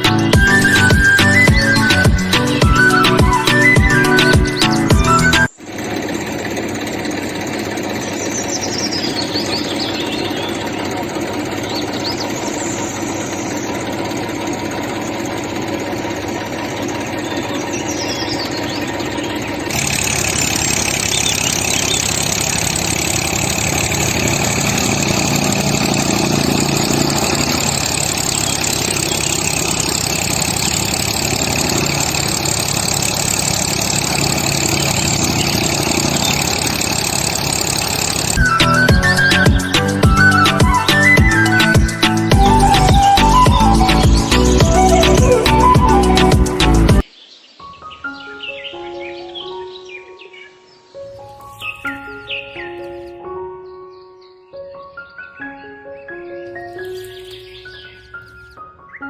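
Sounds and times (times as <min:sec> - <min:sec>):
tractor engine running: 0:00.0 - 0:47.1.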